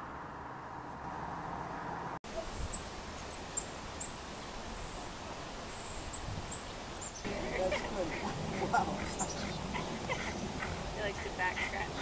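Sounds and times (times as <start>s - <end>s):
outdoor background noise: 0.0s - 12.0s
songbird high chirps: 2.3s - 11.3s.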